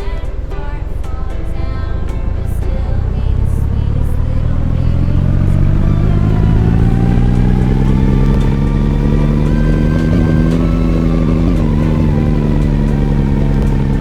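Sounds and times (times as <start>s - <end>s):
motor drone rising in pitch: 2.8s - 14.0s.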